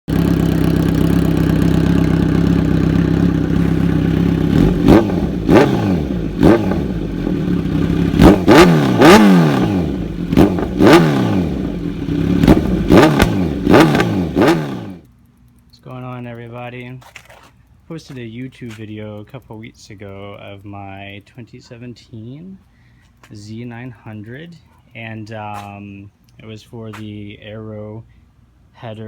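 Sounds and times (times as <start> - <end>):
motorcycle engine revving: 0.1 - 15.1
motorcycle engine idling: 0.1 - 16.8.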